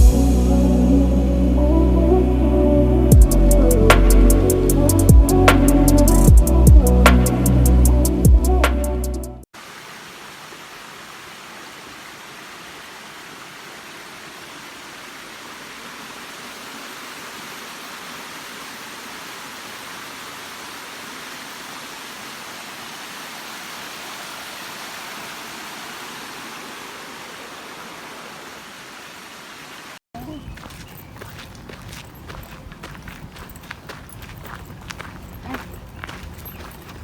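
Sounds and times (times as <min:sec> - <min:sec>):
waterfall rushing: 0:09.6 - 0:30.0.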